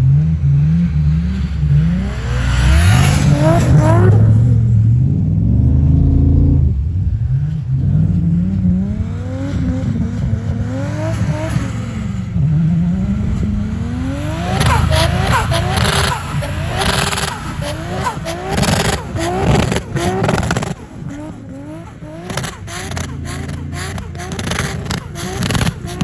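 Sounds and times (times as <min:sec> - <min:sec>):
car engine revving hard: 0:00.0 - 0:26.0.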